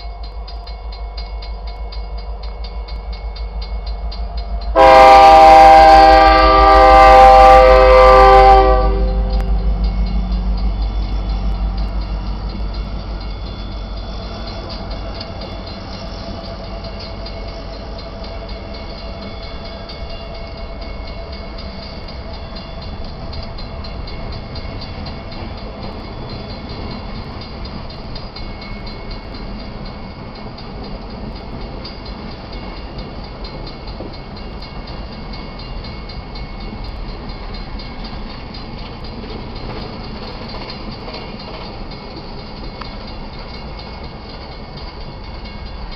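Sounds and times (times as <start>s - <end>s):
locomotive low rumble: 0.0s - 33.4s.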